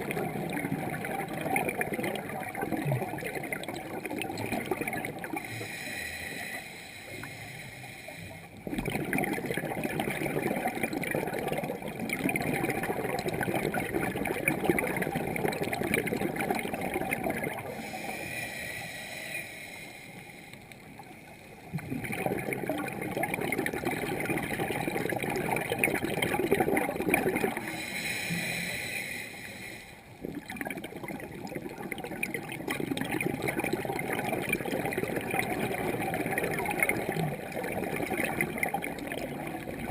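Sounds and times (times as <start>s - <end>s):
gurgling exhaled bubbles: 0.0s - 7.5s, 8.2s - 18.3s, 20.9s - 29.2s, 30.1s - 39.9s
diver breathing through regulator: 5.4s - 8.6s, 17.6s - 21.6s, 27.5s - 30.1s.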